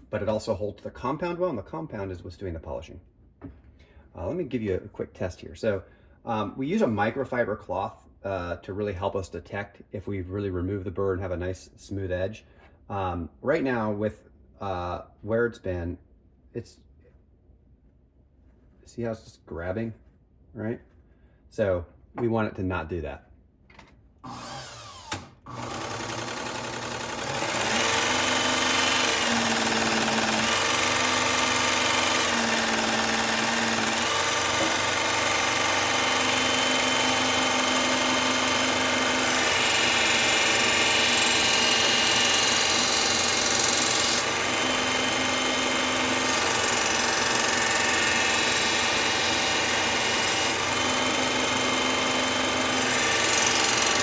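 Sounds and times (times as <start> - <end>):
belt grinder running: 24.2 - 54.0.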